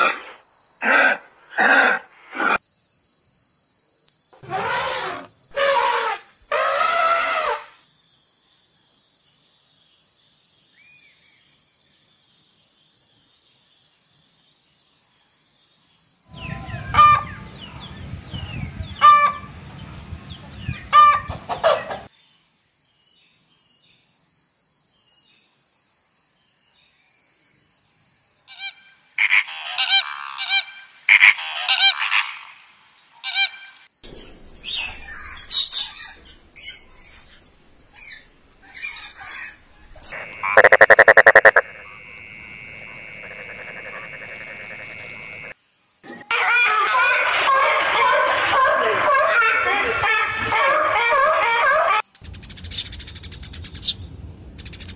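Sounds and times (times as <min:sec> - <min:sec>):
loud honking calls: 0:16.3 - 0:20.0, 0:40.0 - 0:41.6.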